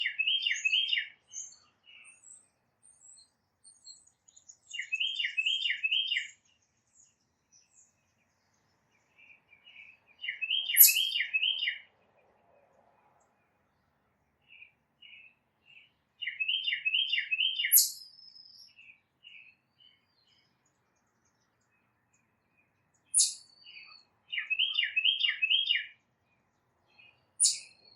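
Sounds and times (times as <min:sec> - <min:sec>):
titmouse whistled song: 0:10.3 - 0:11.8, 0:16.3 - 0:18.2, 0:23.1 - 0:25.9, 0:27.4 - 0:27.9
faint high bird chips: 0:10.5 - 0:11.4, 0:17.5 - 0:18.1, 0:23.1 - 0:23.9, 0:27.4 - 0:27.9.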